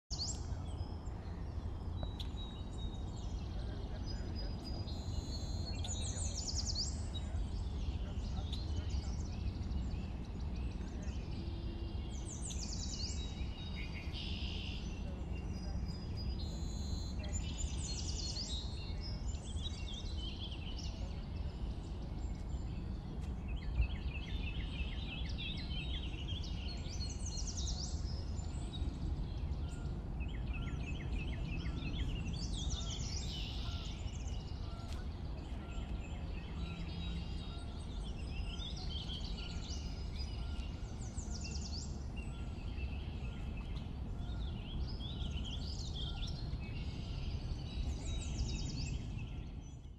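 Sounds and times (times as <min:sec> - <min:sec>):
songbirds singing and calling: 0:00.1 - 0:49.9.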